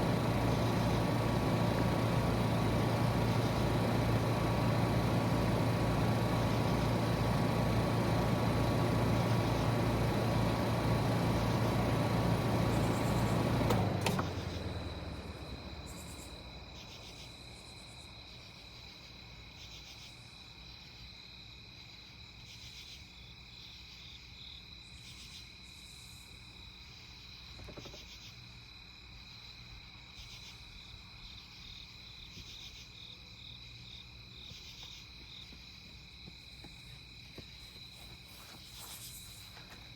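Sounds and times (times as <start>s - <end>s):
heat pump shutoff click: 0.0s - 14.9s
heat pump humming: 0.0s - 16.6s
crickets chirping: 14.2s - 39.9s.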